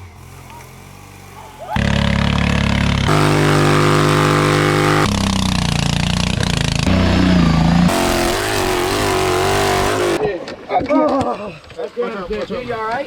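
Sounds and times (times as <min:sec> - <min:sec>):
lawn mower engines running hard: 0:00.0 - 0:10.2.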